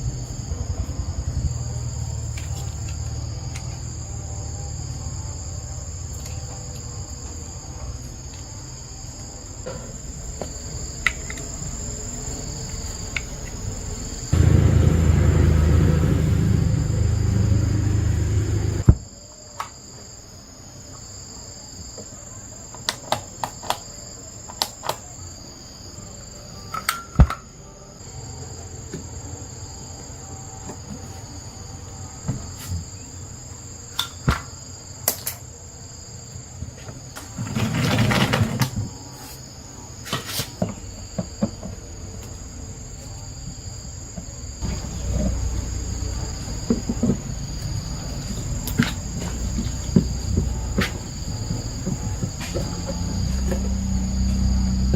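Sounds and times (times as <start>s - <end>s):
low rumbling noise: 0.0s - 6.1s, 13.8s - 19.0s
crickets chirring: 0.0s - 54.9s
brief rushing noise: 14.4s - 18.9s.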